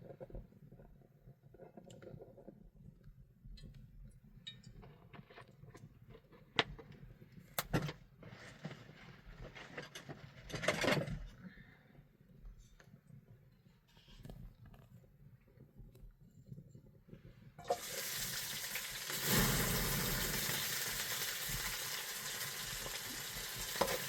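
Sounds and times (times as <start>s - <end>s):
rustling scrape: 8.2s - 10.8s.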